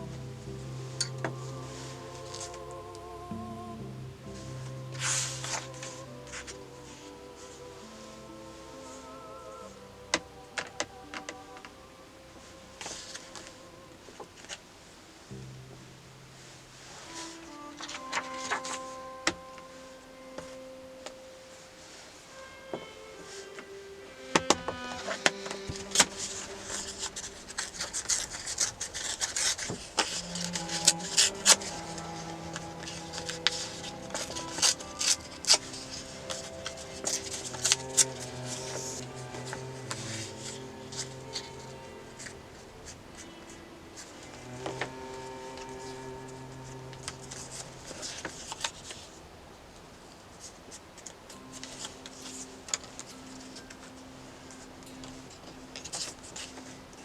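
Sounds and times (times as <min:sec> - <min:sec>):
faint steady low tones: 0:00.0 - 0:57.0
soft background music: 0:00.0 - 0:57.0
paper scratching and rubbing: 0:24.8 - 0:42.4.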